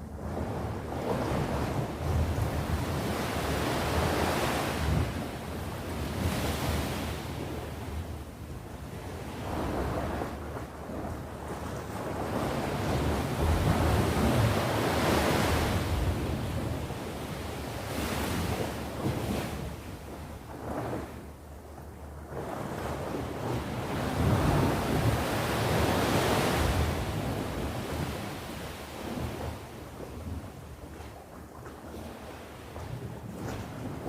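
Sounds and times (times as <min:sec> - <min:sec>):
wind rumble on microphone: 0:00.0 - 0:34.0
sea waves breaking ashore: 0:00.8 - 0:08.0, 0:12.0 - 0:19.8, 0:22.6 - 0:29.8.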